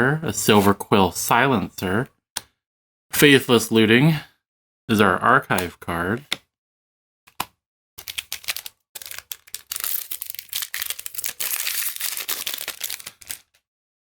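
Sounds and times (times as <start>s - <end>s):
plastic wrapper crinkling: 8.0s - 13.6s.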